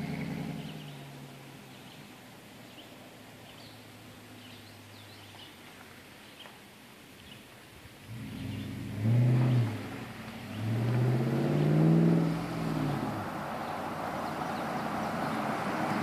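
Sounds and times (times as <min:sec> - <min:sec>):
truck engine revving: 0:08.1 - 0:16.0.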